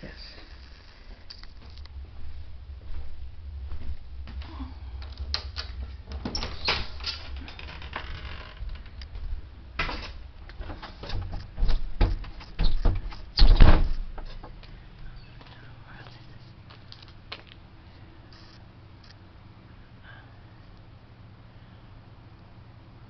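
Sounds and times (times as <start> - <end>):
door clicks and knocks: 9.8 - 14.6.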